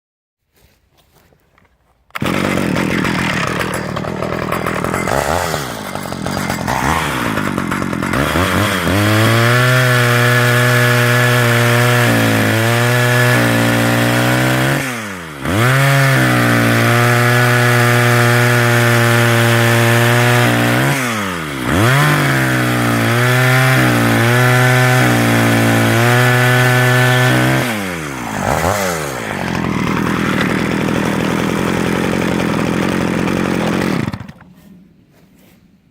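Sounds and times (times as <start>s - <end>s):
chainsaw engine revving: 2.1s - 34.6s.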